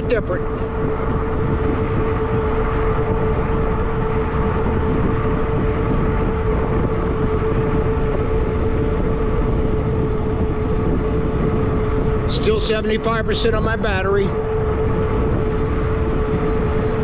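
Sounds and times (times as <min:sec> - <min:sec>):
steady mid-pitched hum: 0:00.0 - 0:17.0
wind rushing over microphone: 0:00.0 - 0:17.0.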